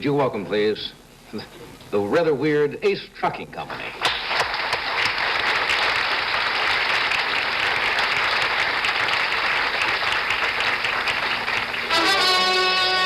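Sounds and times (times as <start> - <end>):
studio audience applauding: 4.0 - 13.0.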